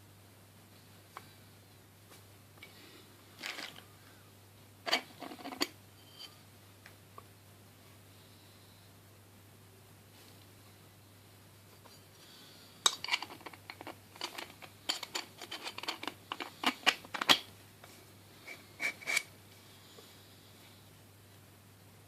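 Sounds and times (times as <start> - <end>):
hard objects clicking and clattering: 3.4 - 3.8, 4.9 - 5.8, 12.9 - 17.5.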